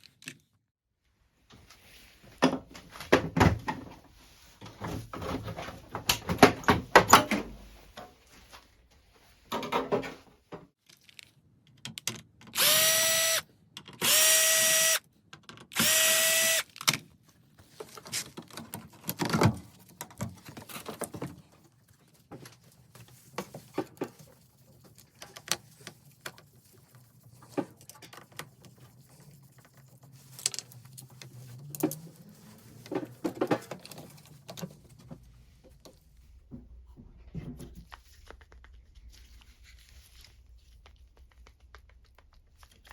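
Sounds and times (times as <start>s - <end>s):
electric drill whining: 12.6s - 13.4s, 14.0s - 15.0s, 15.8s - 16.6s
tools being handled: 22.3s - 35.2s.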